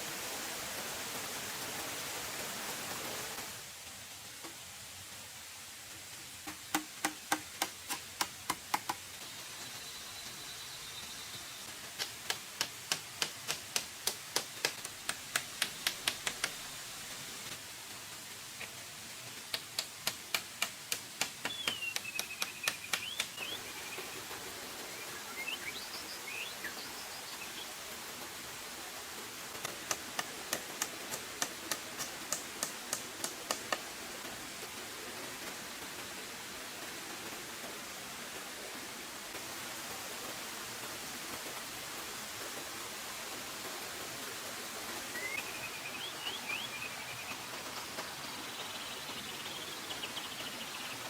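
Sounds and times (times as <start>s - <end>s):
steady background hiss: 0.0s - 51.0s
rapid sharp taps: 12.0s - 16.6s, 19.5s - 23.4s, 29.6s - 33.9s.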